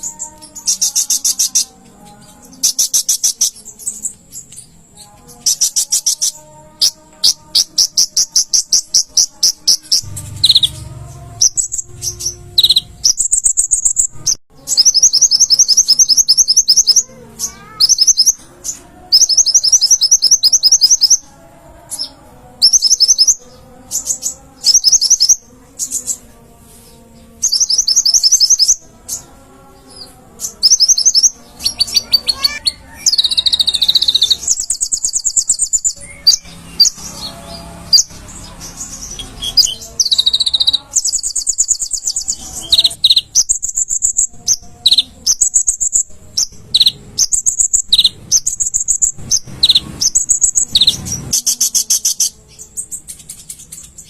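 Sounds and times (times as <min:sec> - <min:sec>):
bird singing high-pitched trills: 0:00.0 - 0:26.3, 0:27.3 - 0:54.0.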